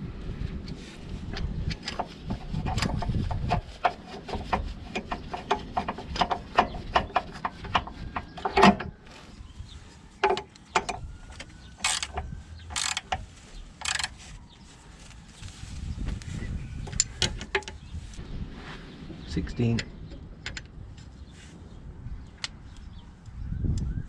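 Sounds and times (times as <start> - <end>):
hand tools clicking and knocking: 1.4 - 8.9, 10.2 - 14.2.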